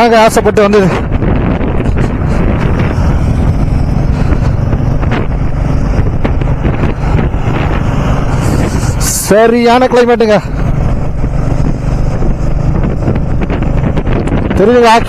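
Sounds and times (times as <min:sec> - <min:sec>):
wind buffeting microphone: 0:00.0 - 0:15.0
motorcycle engine running: 0:00.9 - 0:15.0.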